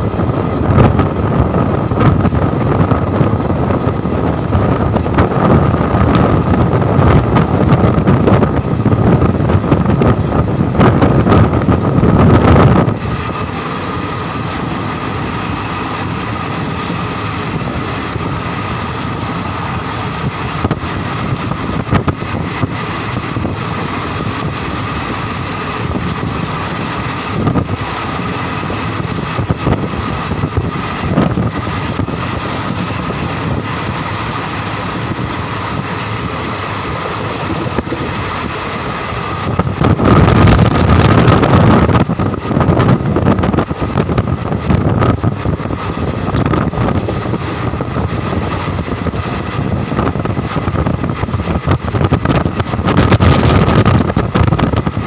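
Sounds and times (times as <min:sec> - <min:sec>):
train wheels rumbling on track: 0:00.0 - 0:55.0
clicks of wheels on rails: 0:18.0 - 0:55.0.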